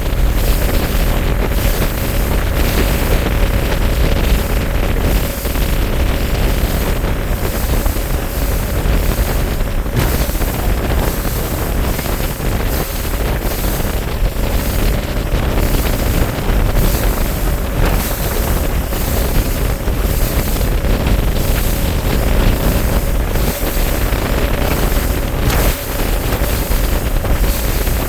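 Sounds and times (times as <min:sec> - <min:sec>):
outboard motor running: 0:00.0 - 0:28.0
water rushing against hull: 0:00.0 - 0:28.0
wind buffeting microphone: 0:00.0 - 0:28.0.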